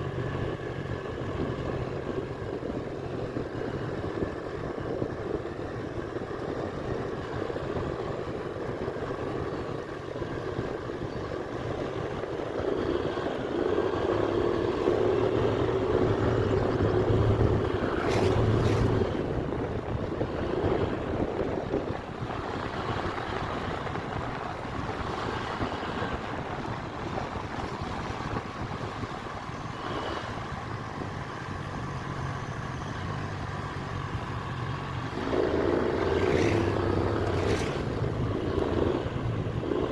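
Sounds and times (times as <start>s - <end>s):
wind noise on microphone: 0.0s - 39.9s
scooter engine running: 30.7s - 39.9s.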